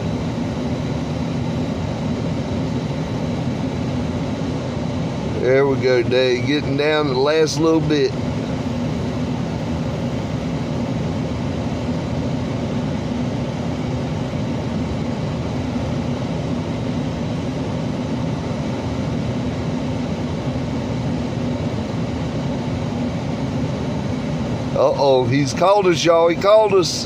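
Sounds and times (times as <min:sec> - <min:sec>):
mechanical hum with low drone: 0:00.0 - 0:27.0.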